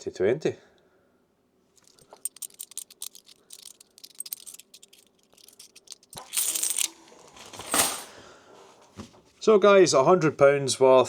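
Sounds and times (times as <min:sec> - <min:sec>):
coins clattering: 0:01.8 - 0:08.1
coins clinking: 0:01.8 - 0:08.1.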